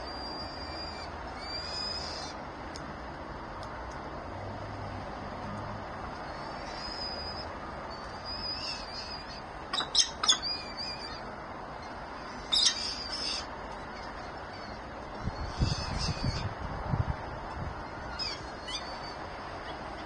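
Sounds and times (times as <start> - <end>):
birds calling: 0.0 - 2.5, 6.2 - 16.7, 17.8 - 20.0.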